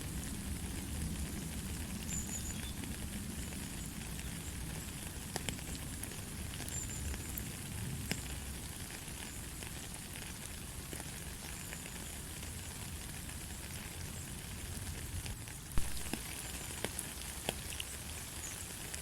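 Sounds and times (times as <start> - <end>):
light rain falling: 0.0 - 19.0
raindrop ticks: 0.2 - 9.9, 15.2 - 19.0.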